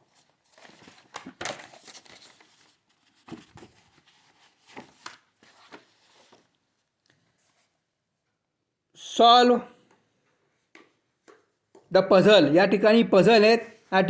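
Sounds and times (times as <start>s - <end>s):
book page rustling: 0.0s - 7.8s.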